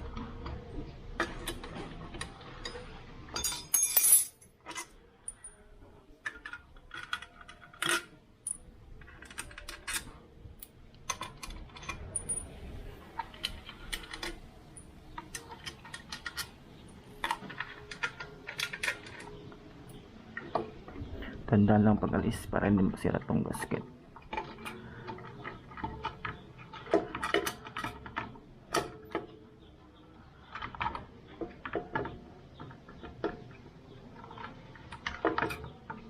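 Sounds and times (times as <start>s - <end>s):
ratchet and bolts clinking: 2.6s - 5.6s.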